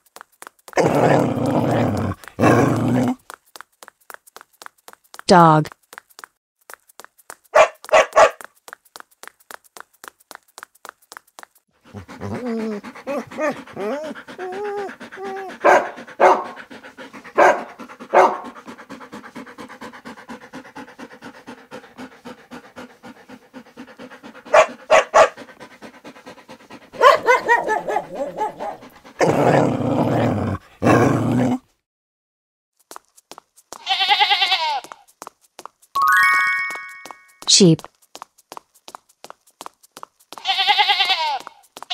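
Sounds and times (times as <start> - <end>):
dog panting: 0.1 - 5.4, 6.2 - 30.8, 37.7 - 41.9
dog barking: 7.6 - 8.4, 15.6 - 16.6, 17.3 - 18.6, 24.5 - 25.5, 27.0 - 28.9.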